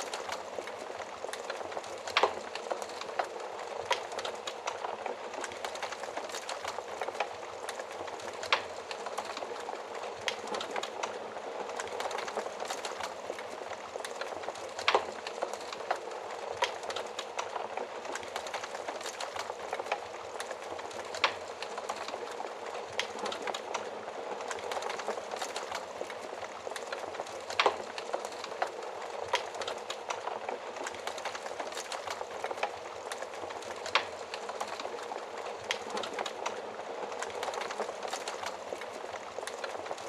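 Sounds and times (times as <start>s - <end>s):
fire burning in an oven: 0.0s - 40.0s.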